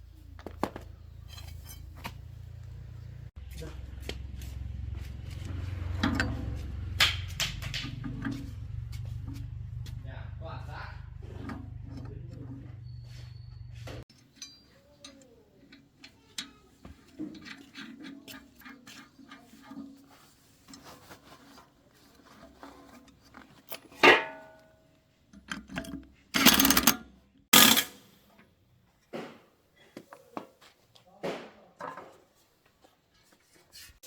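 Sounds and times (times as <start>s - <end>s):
metal tools clicking and clinking: 1.3s - 2.2s, 14.1s - 19.8s, 25.3s - 28.0s
ringing metallic clank: 27.6s - 28.0s.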